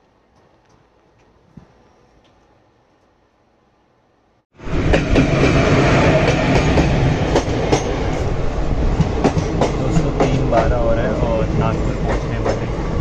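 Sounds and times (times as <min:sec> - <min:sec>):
train wheels rushing on rails: 0:04.6 - 0:13.0
wheels clacking over rail joints: 0:08.9 - 0:13.0.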